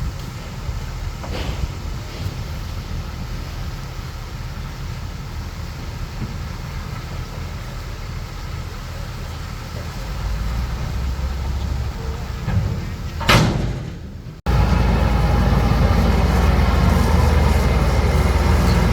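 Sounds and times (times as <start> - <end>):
bulldozer diesel engine rumble: 0.0 - 18.9.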